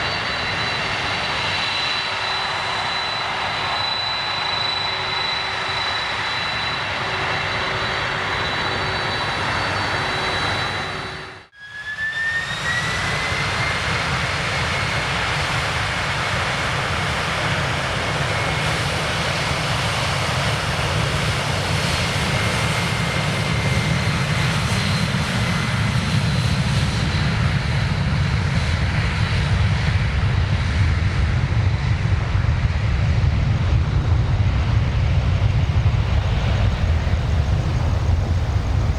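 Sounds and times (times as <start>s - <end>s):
jet engines whining: 0.0s - 38.9s
deep rumble: 29.6s - 38.9s.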